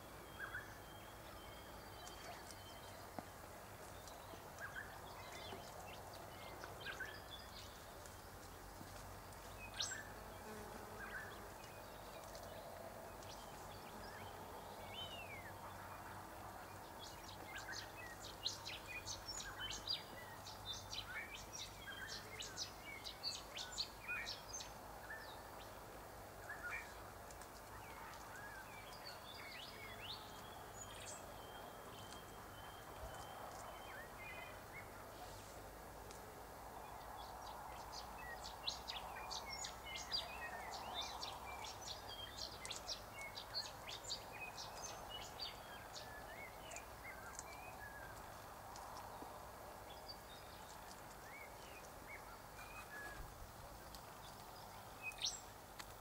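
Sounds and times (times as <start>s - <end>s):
faint outdoor background noise: 0.0s - 56.0s
birds chirping: 36.8s - 56.0s.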